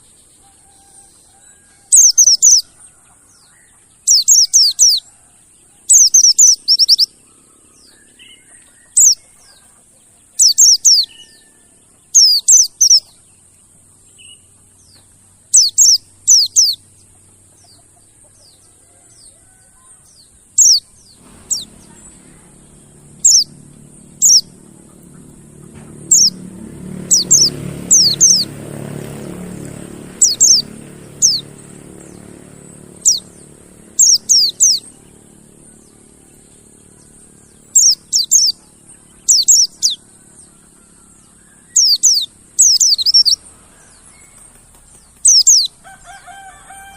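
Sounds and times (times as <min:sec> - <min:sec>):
low hum: 0:20.5 - 0:44.4.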